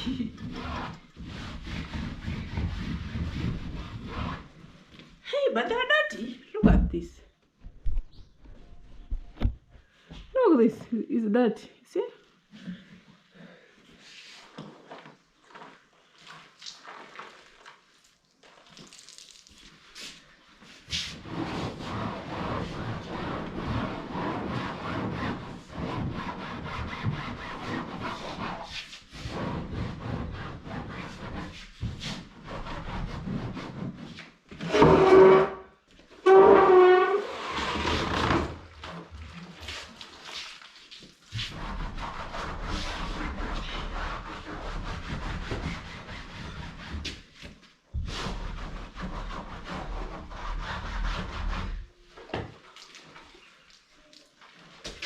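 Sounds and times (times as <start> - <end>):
cloth scrubbing chairs: 0.1 - 4.9, 19.9 - 35.6, 36.2 - 51.8.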